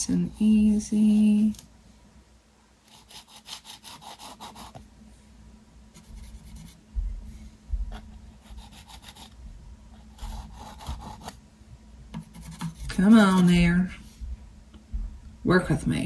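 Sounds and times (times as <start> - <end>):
palette knife scraping paint: 2.9 - 4.8, 12.2 - 13.7
dull low thumps: 6.0 - 8.3, 13.6 - 15.5.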